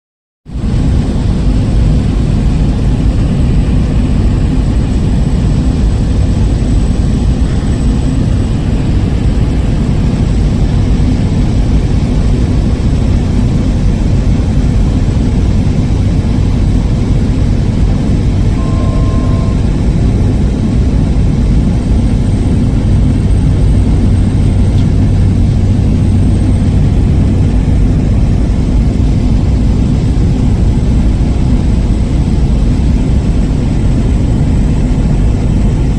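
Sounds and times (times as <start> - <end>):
turboprop engine droning: 0.5 - 35.9
short electronic beep: 18.5 - 19.8.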